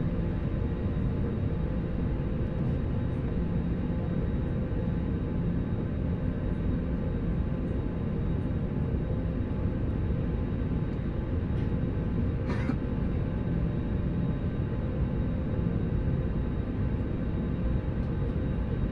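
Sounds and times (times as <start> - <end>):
airliner cabin engine rumble: 0.0 - 18.9.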